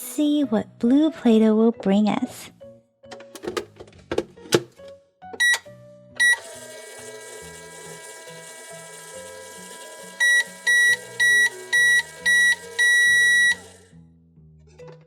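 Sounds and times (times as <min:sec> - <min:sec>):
microwave beeps: 0:05.4 - 0:13.9
microwave oven humming: 0:05.4 - 0:13.9.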